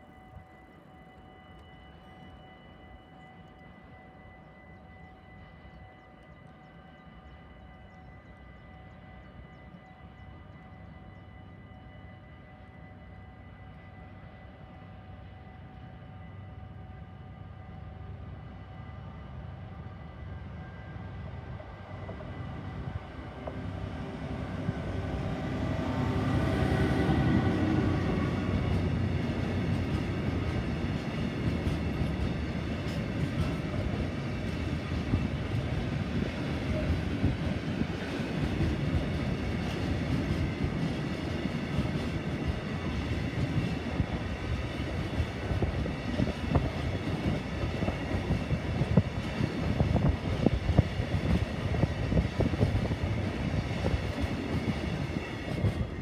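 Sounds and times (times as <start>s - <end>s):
diesel locomotive engine: 0.0s - 56.0s
train wheels rumbling on rails: 17.8s - 56.0s.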